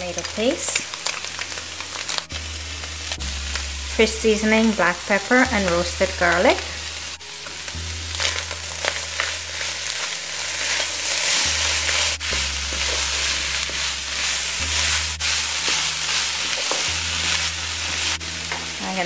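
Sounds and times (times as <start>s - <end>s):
fish sizzling in oil: 0.0s - 19.0s
steady low hum: 0.0s - 19.0s
wooden spatula scraping and tapping: 7.4s - 18.7s.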